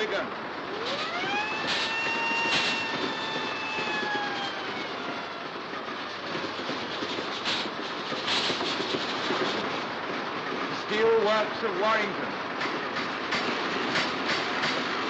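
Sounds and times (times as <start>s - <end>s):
rumble of moving steam train: 0.0s - 15.0s
steam whistle: 1.0s - 4.6s.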